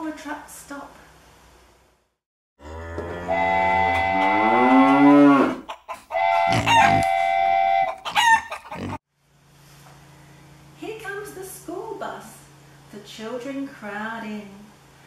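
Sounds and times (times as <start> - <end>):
cattle mooing: 2.6 - 5.6, 6.2 - 7.8
high sweeping call: 3.3 - 4.6.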